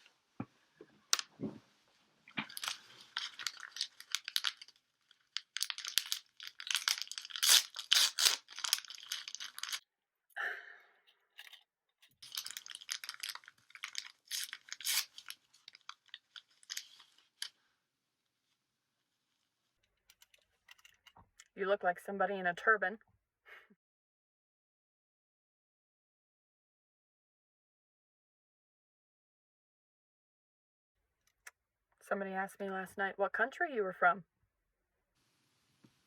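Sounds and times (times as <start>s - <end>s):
cloth bandage rustling and tearing: 2.4s - 9.8s, 12.2s - 17.6s.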